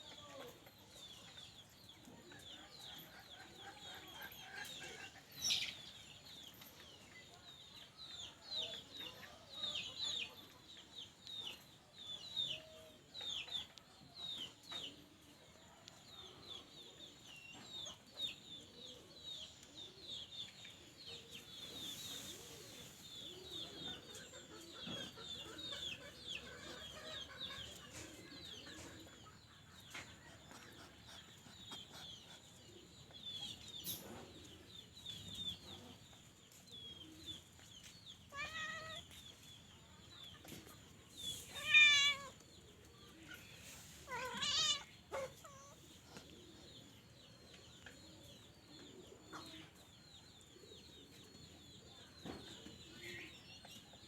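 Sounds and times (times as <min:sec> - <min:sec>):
small animal high-pitched peeps: 0:40.2 - 0:46.5.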